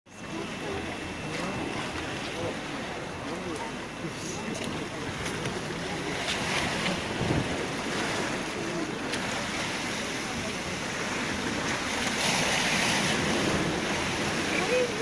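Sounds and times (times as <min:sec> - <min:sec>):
waves washing onto shore: 0:00.1 - 0:15.0
wind buffeting microphone: 0:05.2 - 0:08.4.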